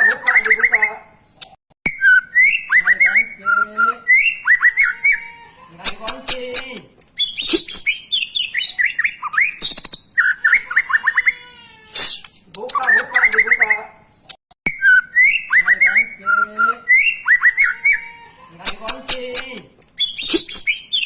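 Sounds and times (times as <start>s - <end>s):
songbird whistling and chattering: 0.0s - 5.4s, 7.0s - 11.4s, 12.0s - 18.2s, 19.8s - 21.0s.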